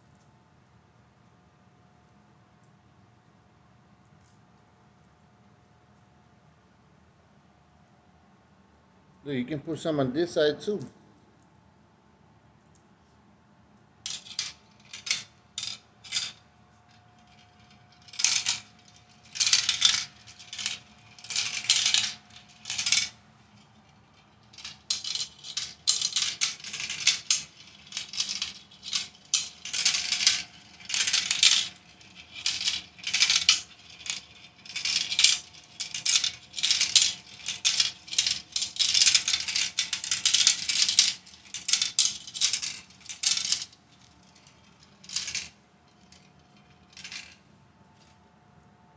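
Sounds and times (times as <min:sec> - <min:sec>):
marbles rattling down tracks: 0:14.1 - 0:16.4, 0:17.2 - 0:47.4.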